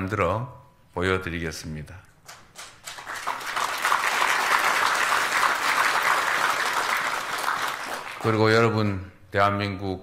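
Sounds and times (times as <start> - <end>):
audience applauding: 2.6 - 8.6.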